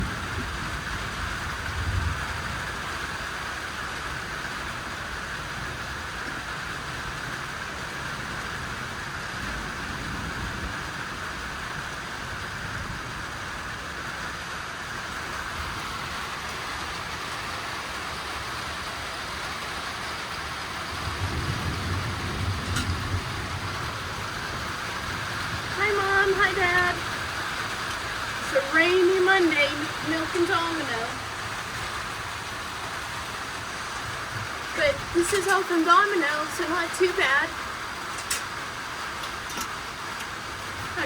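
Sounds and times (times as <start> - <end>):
steady rain hiss: 0.0 - 41.0
low rumble: 20.9 - 27.4.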